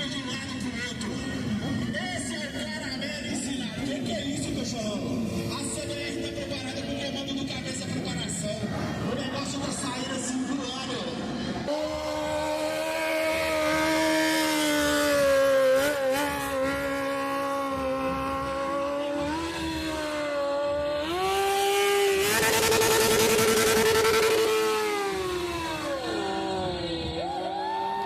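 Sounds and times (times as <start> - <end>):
motorcycle engine revving high: 11.4 - 28.0.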